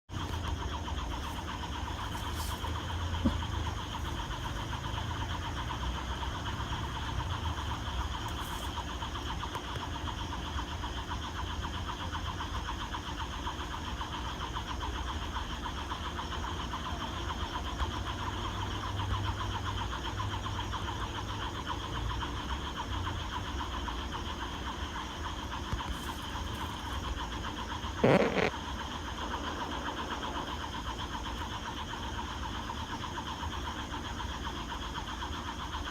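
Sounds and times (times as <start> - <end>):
steady low rumble: 0.1 - 10.3
frogs and insects trilling: 0.1 - 35.9.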